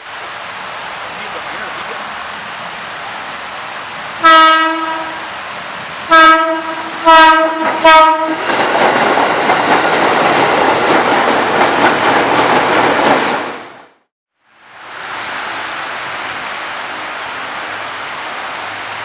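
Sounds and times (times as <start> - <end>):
heavy rain hissing: 0.0 - 10.9, 14.5 - 19.0
train wheels rumbling on track: 0.1 - 14.0
train horn blasts: 4.2 - 5.3, 6.0 - 8.5.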